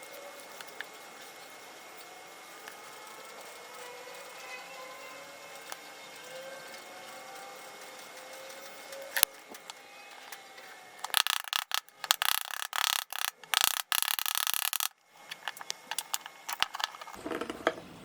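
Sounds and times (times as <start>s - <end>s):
sharp clicks: 11.0s - 17.2s.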